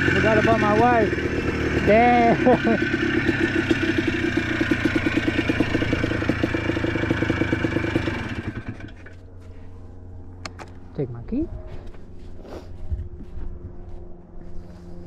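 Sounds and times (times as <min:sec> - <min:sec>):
atv engine running: 0:00.0 - 0:10.9.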